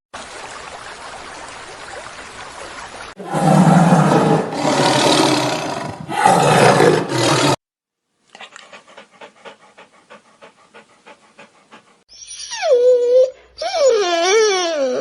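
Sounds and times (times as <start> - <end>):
large animal roaring: 3.2 - 7.6
faint rapid panting: 8.4 - 12.0.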